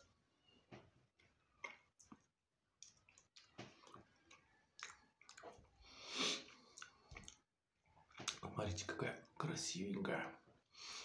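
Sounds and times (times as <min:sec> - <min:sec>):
chewing crisp fried fish: 0:01.1 - 0:08.5
wet mouth clicks: 0:01.6 - 0:05.6.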